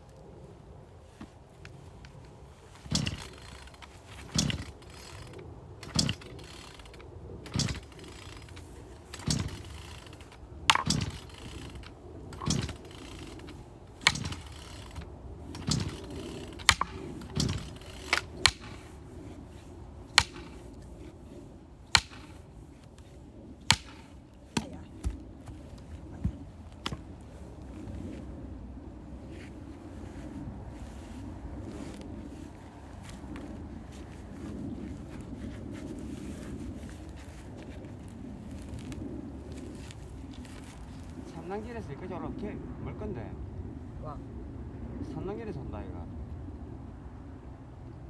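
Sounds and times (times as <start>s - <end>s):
axe chopping firewood: 2.8s - 5.2s, 5.8s - 6.9s, 7.5s - 19.0s, 20.1s - 21.1s, 21.9s - 27.1s.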